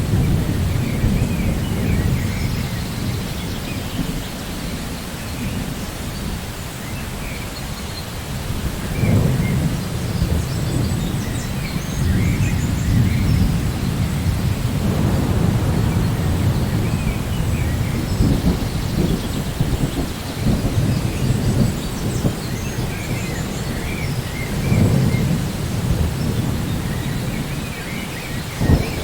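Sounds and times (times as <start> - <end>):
low rolling thunder: 0.0 - 6.6, 8.2 - 29.0
steady rain: 0.0 - 29.0.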